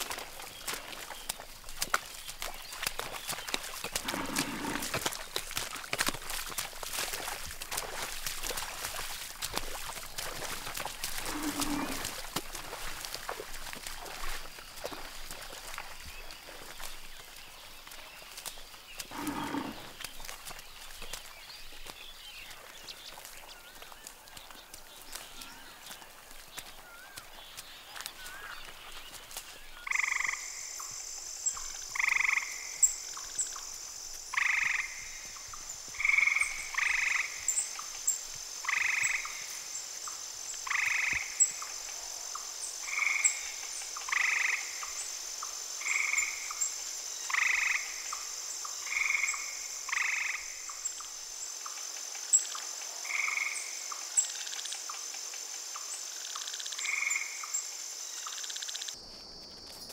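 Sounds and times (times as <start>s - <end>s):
frogs croaking: 2.4s - 16.8s, 19.0s - 20.0s, 29.4s - 59.8s
high insect drone: 29.8s - 59.9s.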